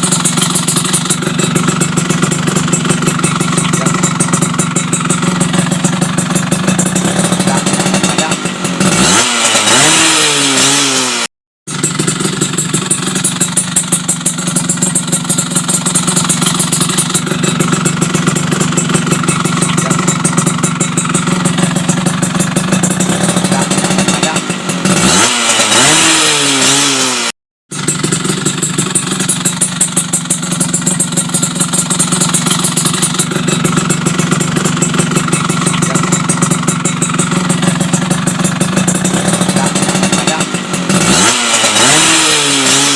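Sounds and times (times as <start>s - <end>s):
motorcycle engine idling: 0.0s - 11.1s, 11.7s - 42.9s
motorcycle engine revving: 0.0s - 42.9s.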